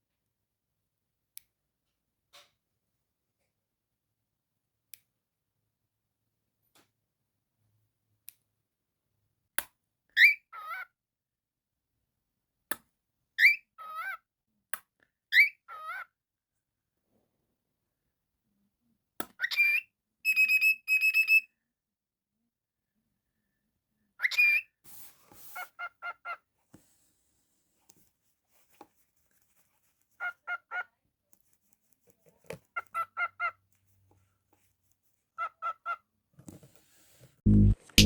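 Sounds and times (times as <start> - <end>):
cockatiel chirping and whistling: 10.2 - 10.8, 13.4 - 14.2, 15.3 - 16.0, 19.4 - 21.5, 24.2 - 24.7.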